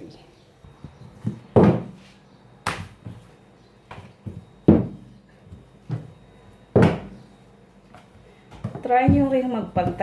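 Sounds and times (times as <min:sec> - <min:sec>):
dough thudding on work surface: 0:01.2 - 0:02.0, 0:02.6 - 0:03.2, 0:03.9 - 0:07.2, 0:08.6 - 0:10.0.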